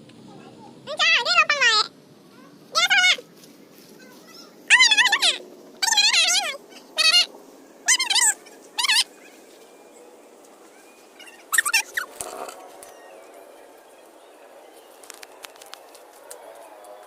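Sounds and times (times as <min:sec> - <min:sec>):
animal high-pitched wavering calls: 0:04.7 - 0:09.5, 0:10.7 - 0:14.5.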